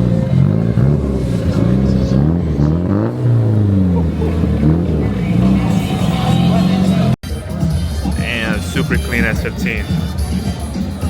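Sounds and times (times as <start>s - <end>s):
car engine revving: 0.0s - 7.2s.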